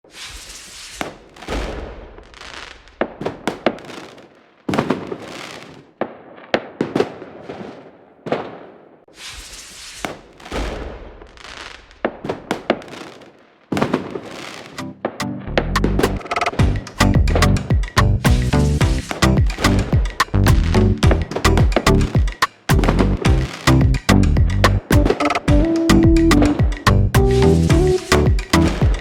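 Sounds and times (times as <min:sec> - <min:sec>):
fireworks cracks and crackles: 0:00.0 - 0:14.8, 0:17.7 - 0:24.0, 0:28.5 - 0:29.0
fireworks booming bursts: 0:00.0 - 0:15.2, 0:15.9 - 0:24.0, 0:27.7 - 0:29.0.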